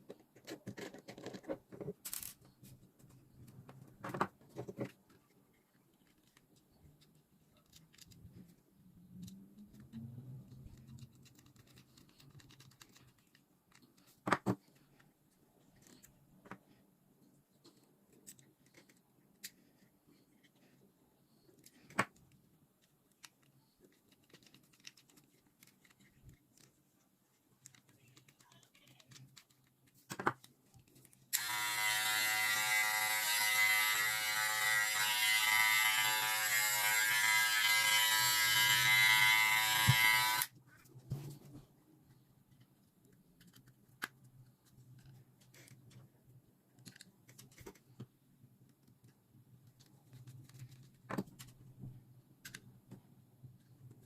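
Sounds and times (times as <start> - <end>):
faint clicks of small parts: 0.1 - 31.5, 42.1 - 51.7, 52.4 - 54.0
electric motor buzzing: 31.4 - 40.5.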